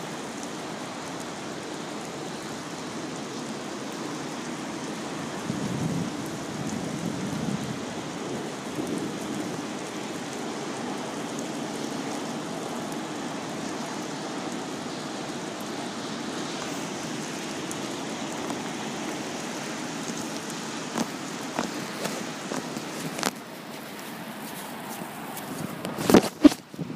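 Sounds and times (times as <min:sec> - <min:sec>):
steady rain falling: 0:00.0 - 0:26.9.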